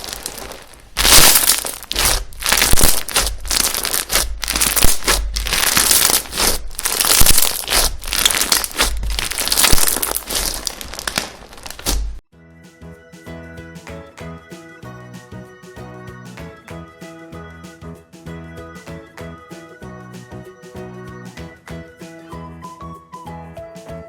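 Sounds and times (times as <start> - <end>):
slime pressed by hand: 0.0 - 12.2
sharp slime pops: 1.0 - 12.2.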